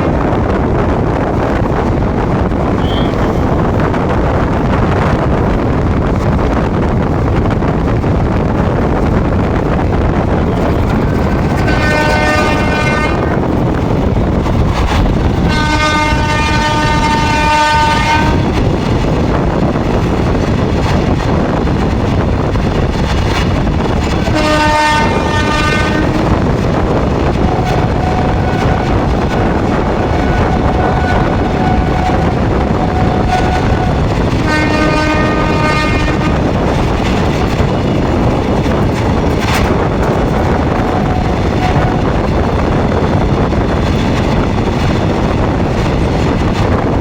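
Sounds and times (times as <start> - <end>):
train wheels rumbling on track: 0.0 - 47.0
locomotive horn: 2.8 - 3.5, 11.4 - 13.4, 15.4 - 18.6, 24.2 - 36.7, 39.6 - 42.4.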